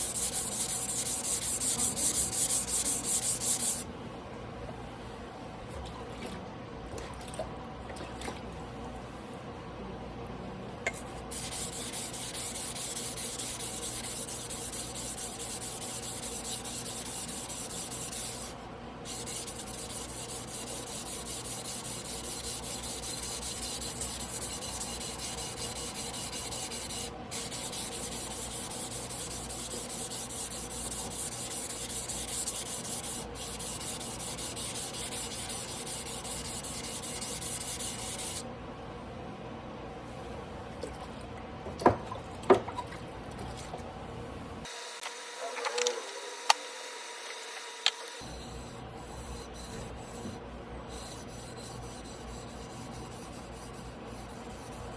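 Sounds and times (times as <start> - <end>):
blade scraping on whetstone: 0.0 - 3.8, 11.2 - 38.4.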